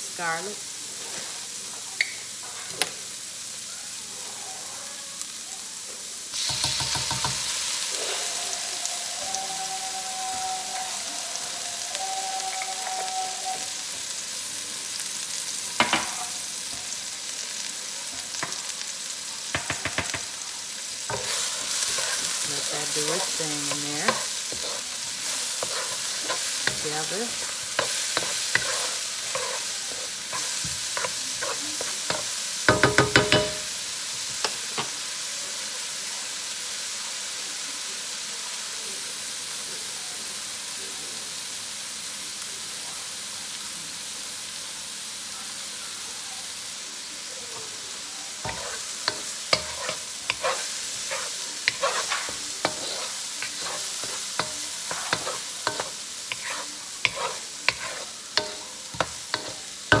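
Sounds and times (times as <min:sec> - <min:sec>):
onion and garlic sizzling in oil: 0:00.0 - 1:00.0
wooden spatula knocking on pan: 0:06.5 - 0:07.4, 0:19.5 - 0:20.3, 0:32.7 - 0:33.7.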